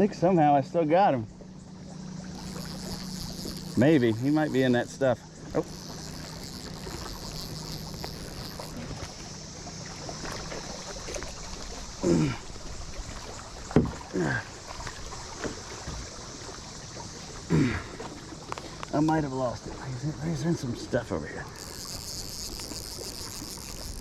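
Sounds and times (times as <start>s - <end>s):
cicada chorus drone: 0.0s - 24.0s
short grunt-like sounds: 12.0s - 12.5s, 17.5s - 18.0s.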